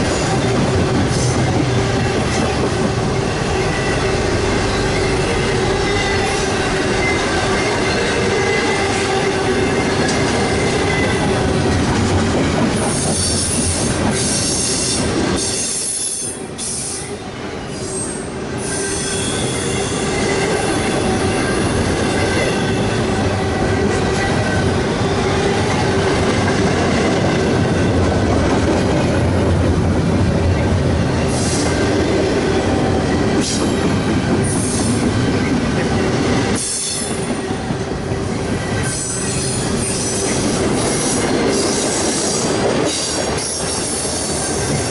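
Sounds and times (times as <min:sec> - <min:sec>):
train wheels squealing on rails: 0:00.0 - 0:28.0, 0:30.5 - 0:44.9
train rumble and clatter: 0:00.0 - 0:44.9.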